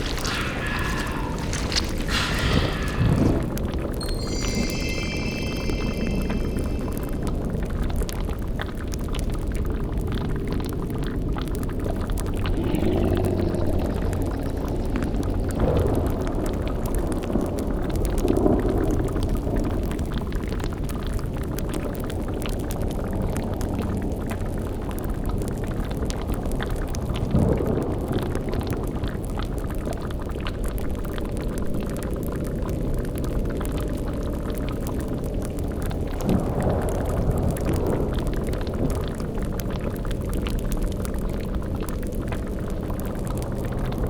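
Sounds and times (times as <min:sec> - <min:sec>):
deep swells: 0:00.0 - 0:08.0
low rumbling drone: 0:00.0 - 0:08.4
cauldron bubbling: 0:00.0 - 0:09.4, 0:11.4 - 0:16.6.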